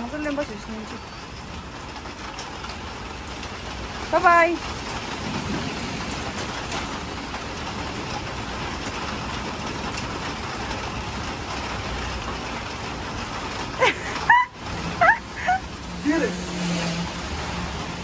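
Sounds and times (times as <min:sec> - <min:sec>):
rain falling on pavement: 0:00.0 - 0:18.0
high-pitched cries: 0:13.8 - 0:15.6.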